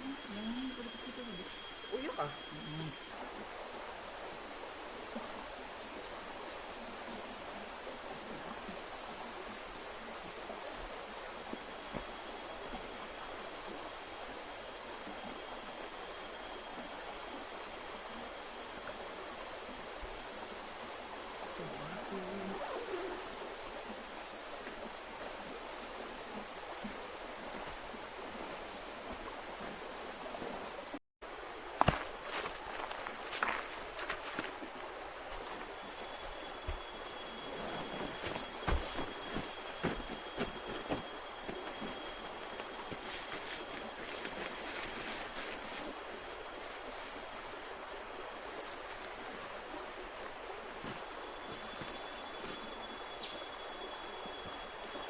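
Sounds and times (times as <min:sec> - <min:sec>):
high insect trill: 0:00.0 - 0:07.7, 0:30.6 - 0:55.0
river water flowing: 0:00.0 - 0:55.0.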